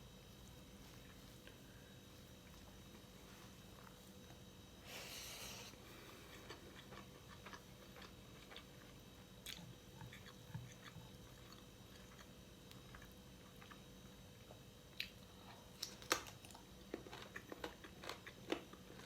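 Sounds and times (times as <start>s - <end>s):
person chewing food: 5.6s - 19.0s.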